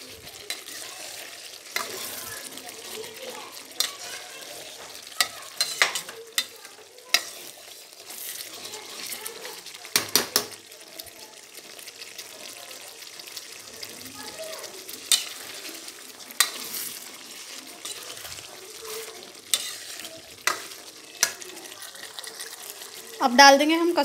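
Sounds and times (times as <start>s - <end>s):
chicken sizzling in oil: 0.0s - 24.0s.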